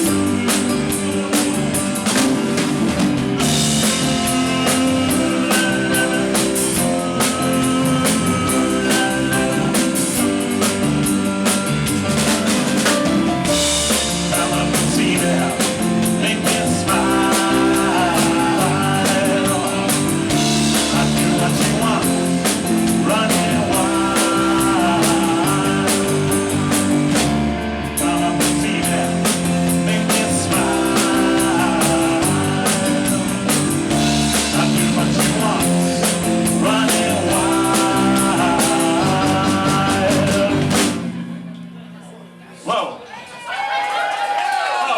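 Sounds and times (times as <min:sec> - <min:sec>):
guitars: 0:00.0 - 0:41.8
live rock band playing: 0:00.0 - 0:42.0
drum kit: 0:00.0 - 0:42.3.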